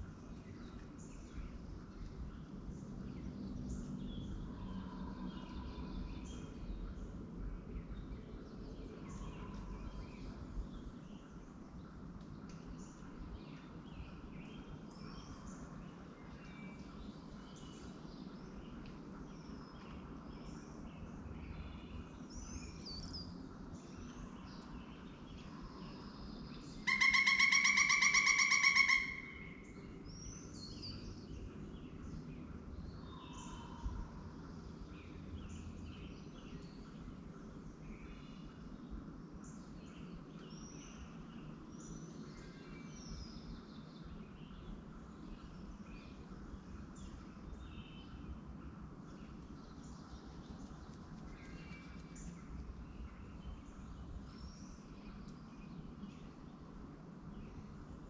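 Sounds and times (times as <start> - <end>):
birds chirping: 24.0 - 32.2
loud drawn-out bird call: 26.9 - 29.6.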